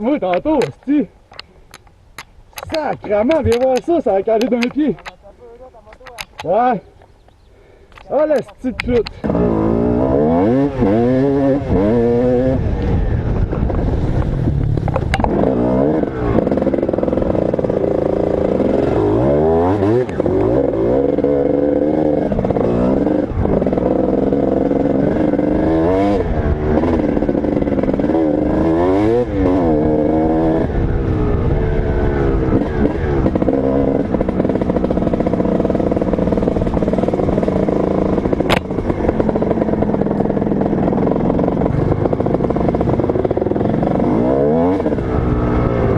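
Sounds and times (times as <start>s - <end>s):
sharp clicks: 0.2s - 9.3s
dirt bike engine revving: 8.1s - 45.9s.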